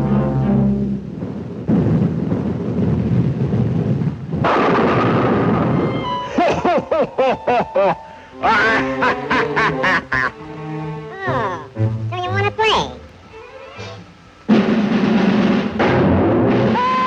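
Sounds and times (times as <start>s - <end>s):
cartoon squawking cries: 11.1s - 13.5s.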